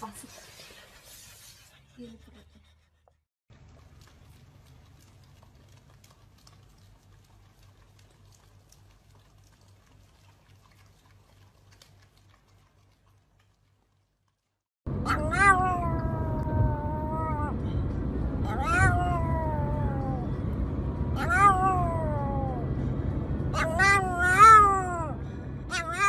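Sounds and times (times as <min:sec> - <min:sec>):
dogs licking: 0:03.5 - 0:14.4
low hum: 0:14.9 - 0:26.0
dog howling: 0:15.1 - 0:17.6, 0:18.4 - 0:20.3, 0:21.2 - 0:22.7, 0:23.5 - 0:26.0.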